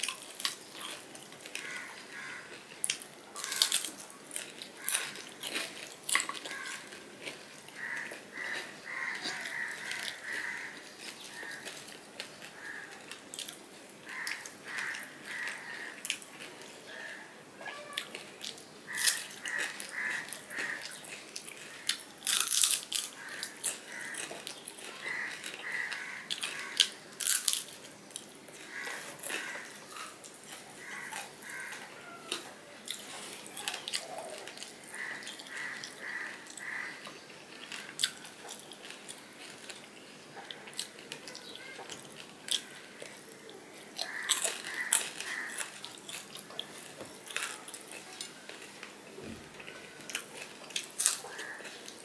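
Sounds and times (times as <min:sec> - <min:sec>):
chewing and lip smacking: 0:00.0 - 0:16.8, 0:18.0 - 0:49.0
sharp crunchy clicks: 0:18.0 - 0:52.0.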